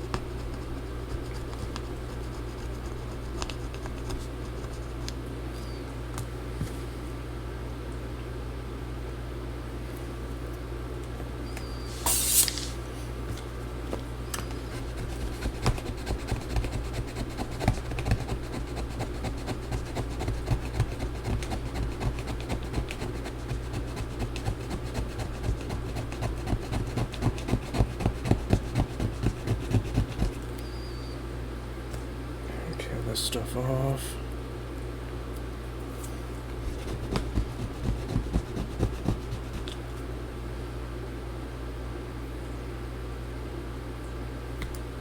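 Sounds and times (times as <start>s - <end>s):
steady low hum: 0.0s - 43.6s
brief hiss: 11.8s - 12.8s
scraping adhesive: 14.7s - 30.4s, 36.6s - 39.7s.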